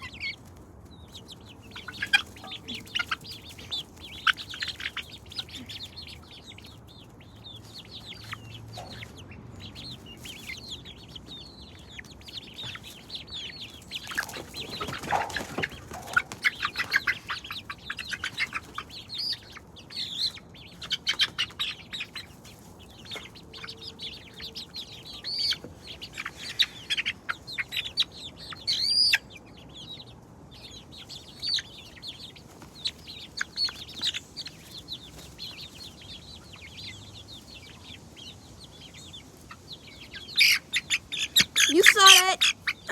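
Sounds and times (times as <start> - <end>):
chickens chirping: 0.0 - 42.9
wings flapping: 14.0 - 17.2.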